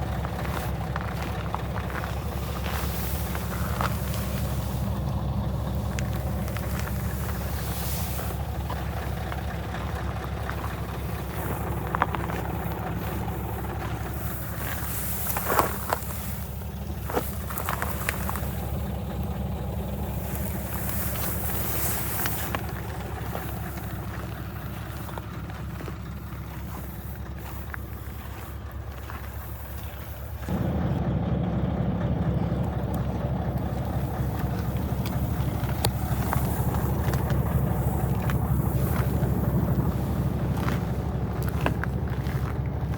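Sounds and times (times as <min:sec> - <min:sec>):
diesel truck engine idling: 0:00.0 - 0:42.9.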